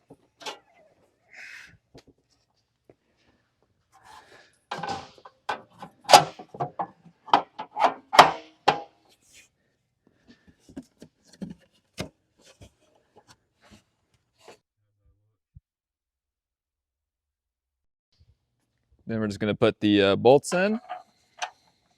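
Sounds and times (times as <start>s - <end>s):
wooden pickets knocking and scraping: 4.7s - 8.9s.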